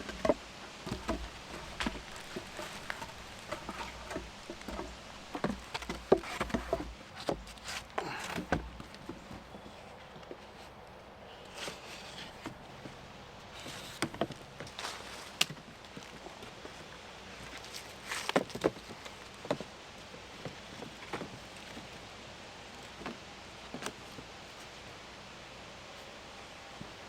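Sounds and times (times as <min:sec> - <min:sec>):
wood pieces knocking: 0:00.0 - 0:09.4
rustling: 0:00.0 - 0:22.1.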